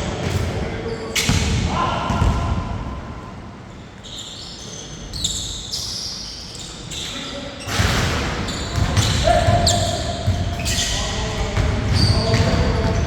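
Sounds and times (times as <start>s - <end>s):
basketball bouncing on court: 1.2s - 2.6s, 7.7s - 13.0s.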